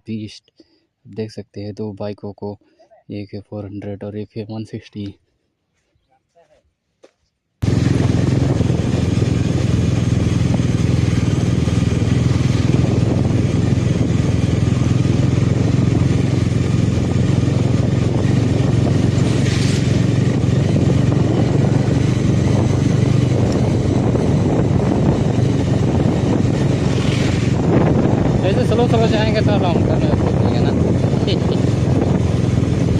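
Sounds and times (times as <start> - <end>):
motorcycle engine running: 7.6 - 32.9.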